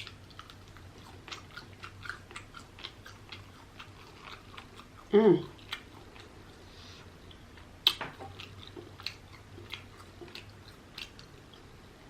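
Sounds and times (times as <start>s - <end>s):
chewing with mouth clicks: 0.0s - 12.0s.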